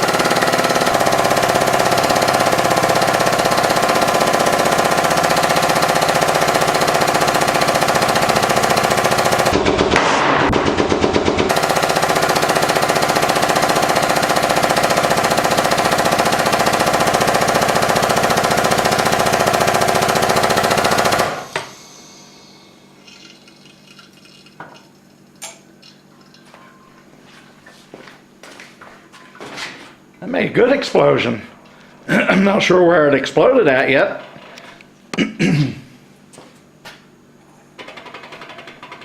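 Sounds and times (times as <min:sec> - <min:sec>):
hydraulic press motor chattering: 0:00.0 - 0:23.6, 0:37.8 - 0:39.0.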